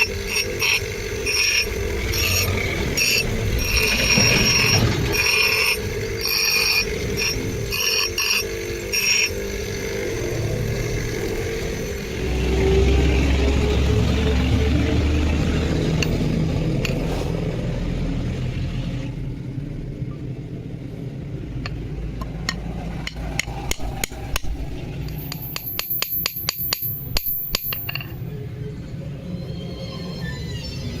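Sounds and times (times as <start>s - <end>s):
steady machine noise: 0.0s - 17.9s, 19.3s - 31.0s
hammer striking metal: 22.4s - 28.2s.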